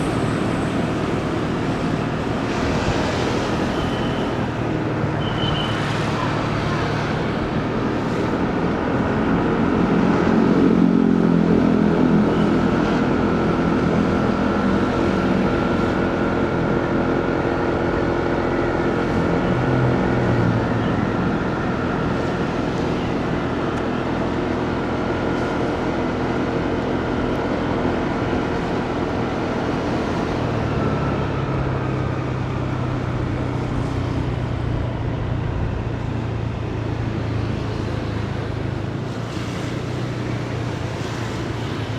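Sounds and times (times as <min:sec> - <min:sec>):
road and wind noise: 0:00.0 - 0:41.9.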